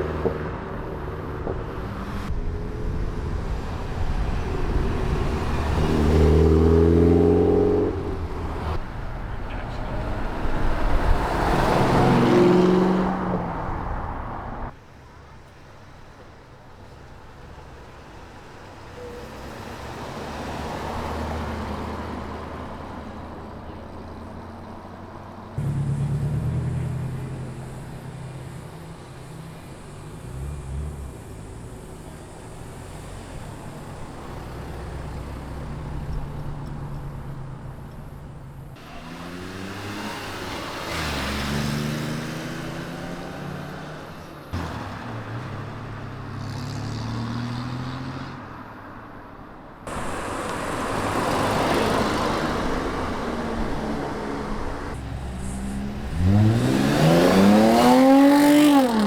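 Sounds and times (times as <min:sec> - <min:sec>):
car accelerating: 0:00.0 - 0:14.8, 0:19.0 - 0:48.9, 0:49.9 - 0:59.0
car engines at low revs: 0:00.0 - 0:59.0.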